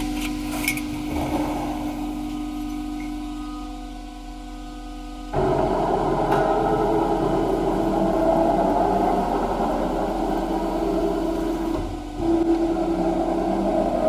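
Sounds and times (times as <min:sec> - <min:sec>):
guillotine shear machine humming: 0:05.3 - 0:14.0.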